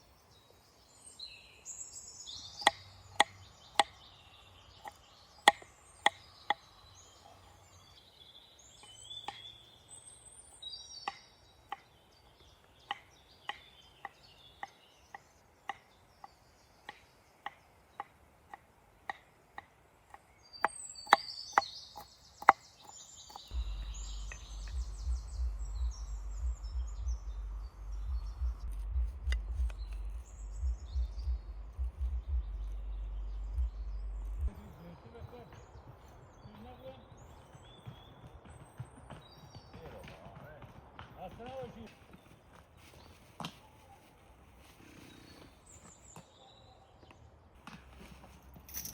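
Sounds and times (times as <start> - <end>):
birds chirping: 0.0 - 48.9
low uneven rumble: 23.4 - 36.8.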